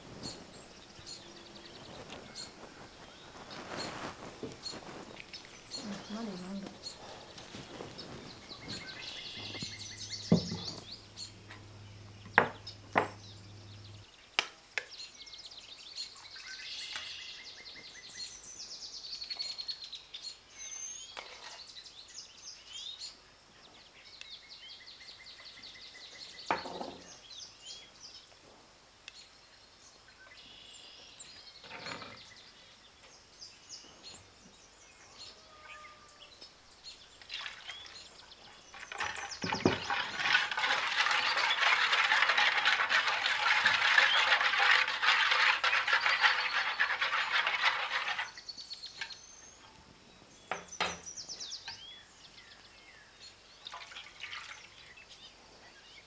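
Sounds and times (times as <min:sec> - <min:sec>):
small birds chirping: 0:00.0 - 0:28.4, 0:29.0 - 0:56.0
low steady hum: 0:05.6 - 0:14.1
kitchen utensils clinking: 0:38.8 - 0:48.4.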